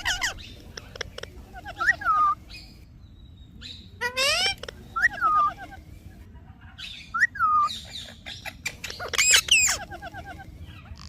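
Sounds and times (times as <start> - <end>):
parrot squawking: 0.0 - 2.7, 4.0 - 5.9, 6.8 - 11.0.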